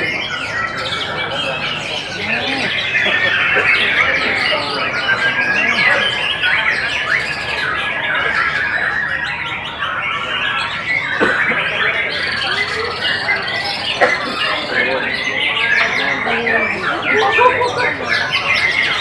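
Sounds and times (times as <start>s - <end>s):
many songbirds singing: 0.0s - 19.0s.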